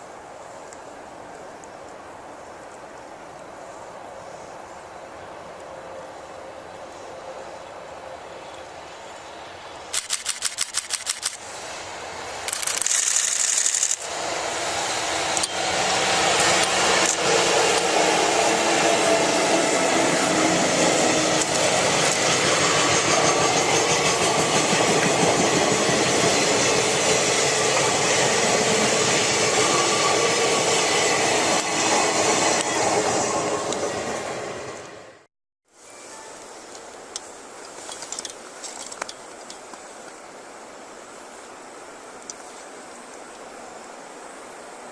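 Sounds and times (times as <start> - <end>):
sharp clicks: 9.9 - 11.4
train wheels rattling over rails: 12.4 - 35.0.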